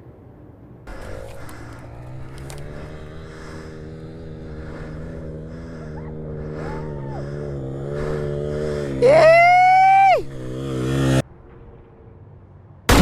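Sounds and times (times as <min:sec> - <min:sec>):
dirt bike engine running: 0:00.9 - 0:11.2.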